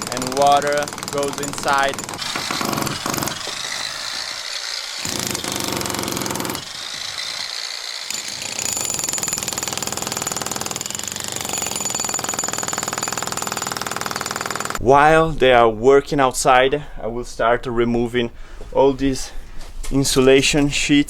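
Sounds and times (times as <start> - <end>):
demolition hammer hammering: 0.0 - 14.8.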